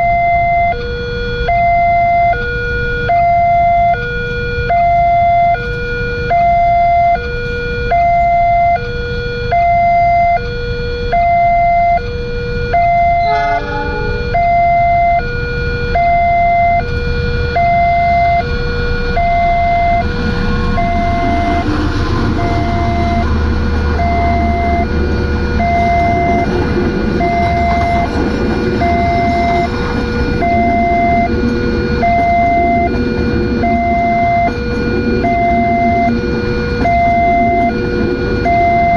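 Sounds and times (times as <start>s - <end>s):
level crossing two-tone alarm: 0.0s - 38.9s
train passing rumble: 13.1s - 15.8s, 18.5s - 38.9s.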